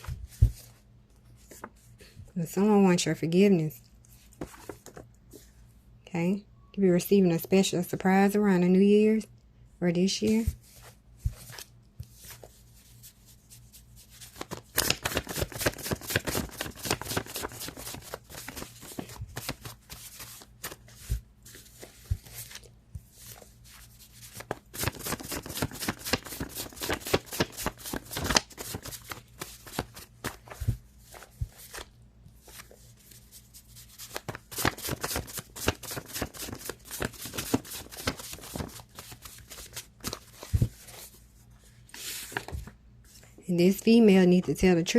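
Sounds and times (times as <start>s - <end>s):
cards shuffling: 14.0s - 41.2s
cards handled: 14.2s - 23.5s, 24.2s - 41.2s.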